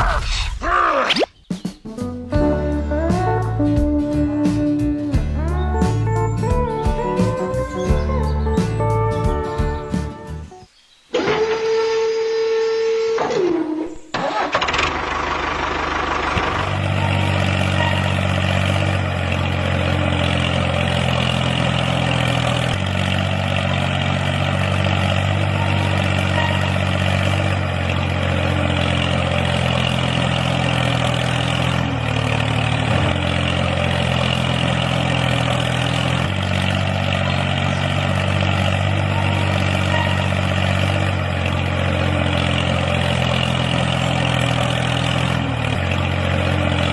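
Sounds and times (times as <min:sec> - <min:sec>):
engine starting and idling: 0:11.1 - 0:46.9.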